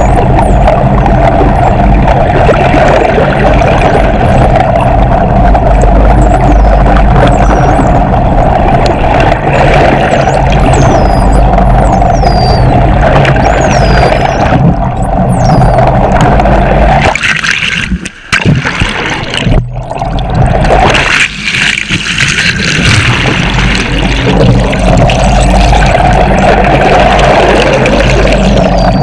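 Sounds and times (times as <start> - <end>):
boat engine and propeller drone: 0.0 - 29.0
underwater rushing water and bubbles: 0.0 - 29.0
dolphin whistle: 10.2 - 15.8, 28.6 - 29.0.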